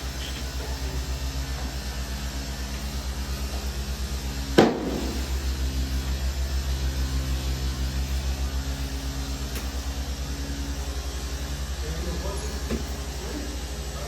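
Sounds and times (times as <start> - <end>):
pulsing machine hum: 0.0 - 14.0
sharp knock: 4.6 - 5.4.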